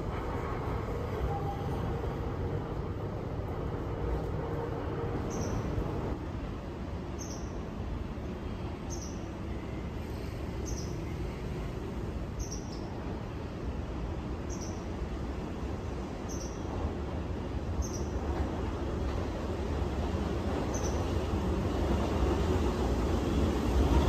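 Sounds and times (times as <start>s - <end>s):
small bird chirping: 5.3s - 5.6s.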